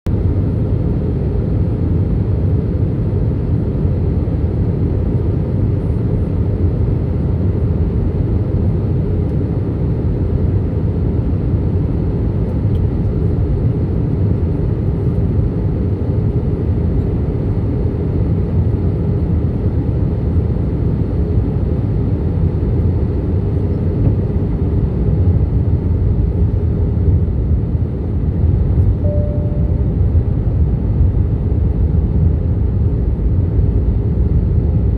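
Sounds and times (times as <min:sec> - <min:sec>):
airliner engines rumbling: 0:00.1 - 0:34.9
short tone: 0:29.0 - 0:30.2.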